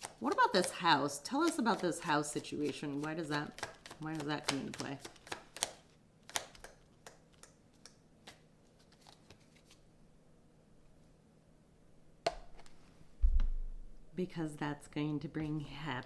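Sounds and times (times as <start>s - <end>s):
cards clicking and tapping: 1.4s - 9.7s.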